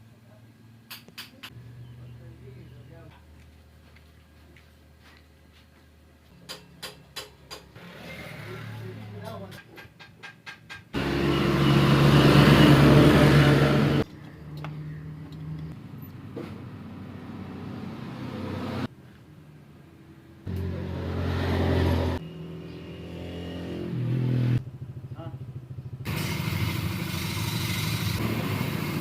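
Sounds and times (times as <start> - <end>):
motorcycle engine revving: 7.8 - 9.4, 11.0 - 14.1, 20.5 - 29.0.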